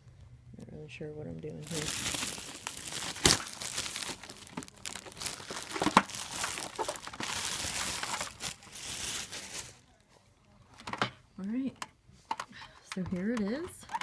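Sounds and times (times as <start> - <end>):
packaging crinkling: 1.5 - 9.8.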